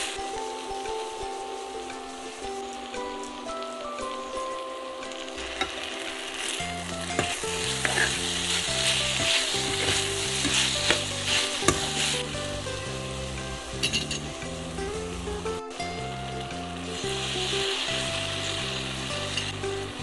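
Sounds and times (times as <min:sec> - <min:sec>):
chicken sizzling in a wok: 0:00.0 - 0:20.0
utensil knocking against pan: 0:09.2 - 0:12.1.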